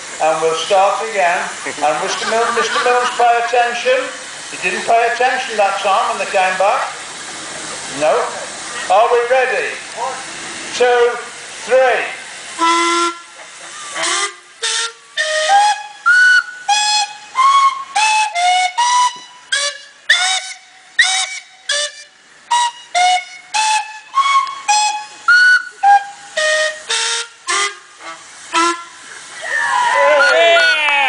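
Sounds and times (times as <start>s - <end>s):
steam whistle blasts: 12.3s - 31.0s.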